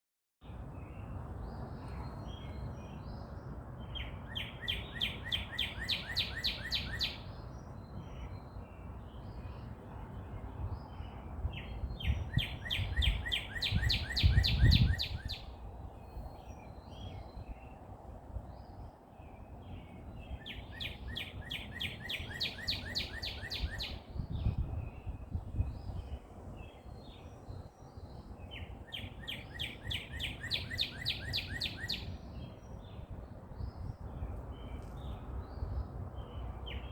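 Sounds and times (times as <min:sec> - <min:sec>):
other birds chirping: 0:03.9 - 0:07.4, 0:11.6 - 0:17.8, 0:19.3 - 0:24.6, 0:28.4 - 0:33.0.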